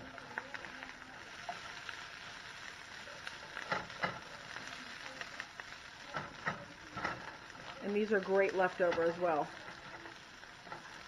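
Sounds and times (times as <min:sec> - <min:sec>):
food sizzling in a skillet: 0:00.0 - 0:11.0
spatula scraping a pan: 0:01.4 - 0:04.8, 0:06.0 - 0:11.0.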